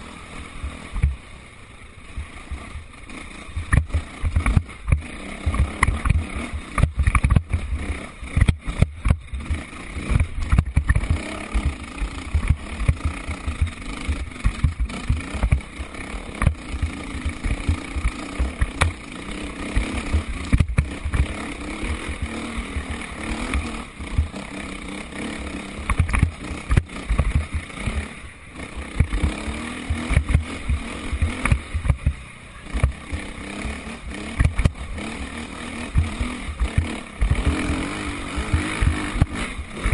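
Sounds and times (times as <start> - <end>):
dirt bike engines buzzing: 0.0 - 39.9
low thumps on microphone: 10.1 - 15.7, 16.4 - 19.0, 19.7 - 21.4, 25.9 - 28.1, 29.9 - 33.0, 34.4 - 34.8.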